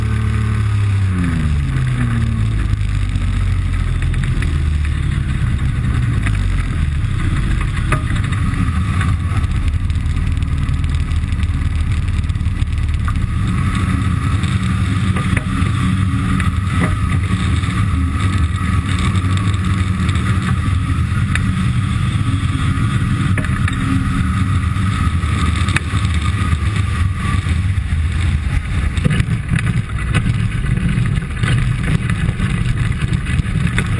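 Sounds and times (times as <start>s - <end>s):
aircraft engine and propeller drone: 0.0s - 32.4s.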